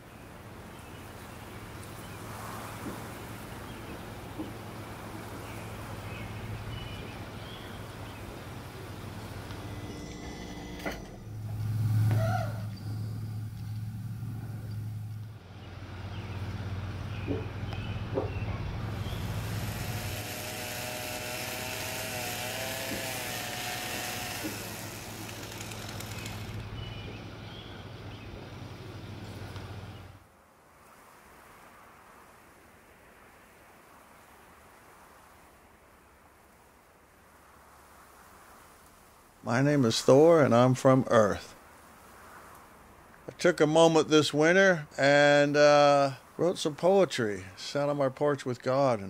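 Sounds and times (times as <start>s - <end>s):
low hum: 8.5s - 30.2s
broad rushing noise: 18.0s - 27.4s.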